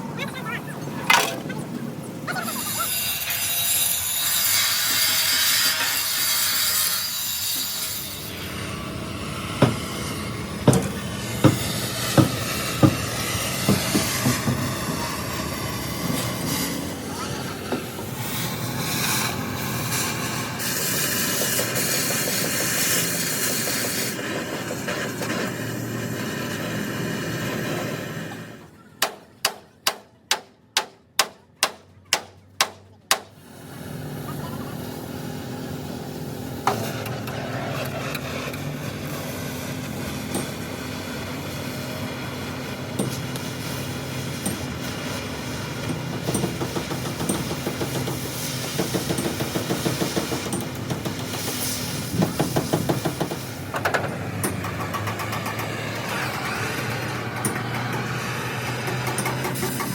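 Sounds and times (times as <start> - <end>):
truck engine running: 31.9 - 59.9.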